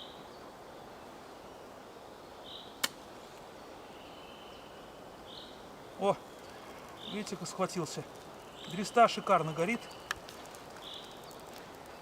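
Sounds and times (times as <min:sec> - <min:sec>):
outdoor background hiss: 0:00.0 - 0:12.0
sharp click: 0:02.8 - 0:03.0
small bird chirping: 0:03.8 - 0:12.0.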